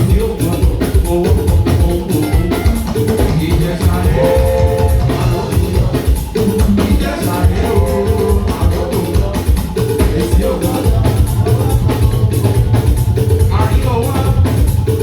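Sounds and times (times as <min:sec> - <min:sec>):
drum kit playing a steady beat: 0:00.0 - 0:15.0
people singing: 0:00.0 - 0:15.0
instruments playing: 0:03.9 - 0:06.2, 0:07.2 - 0:09.4.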